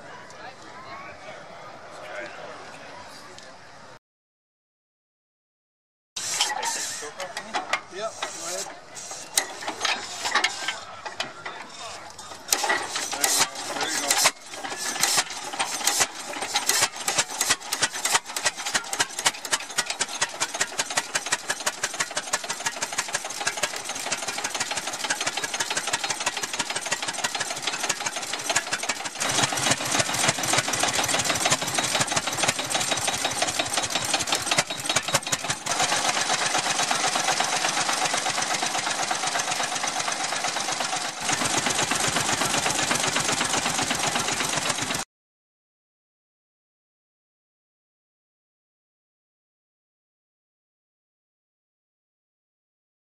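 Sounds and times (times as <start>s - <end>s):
tractor engine running: 6.2s - 45.0s.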